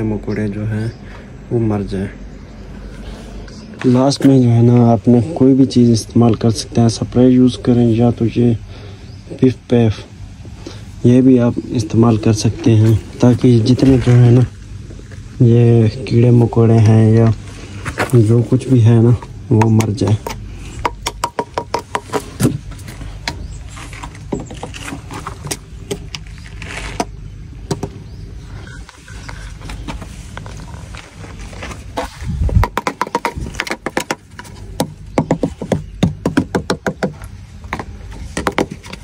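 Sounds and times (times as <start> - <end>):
steady low rumble: 0.0 - 35.2.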